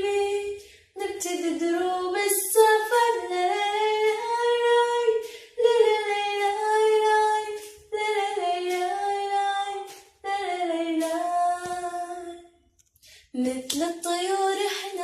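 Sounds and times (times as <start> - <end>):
woman singing unaccompanied: 0.0 - 12.5, 13.4 - 15.0.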